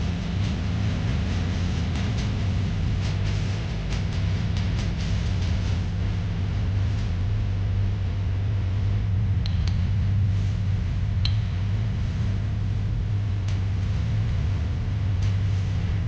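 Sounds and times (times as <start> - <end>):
sharp light clicks: 9.4 - 9.9, 11.2 - 11.6.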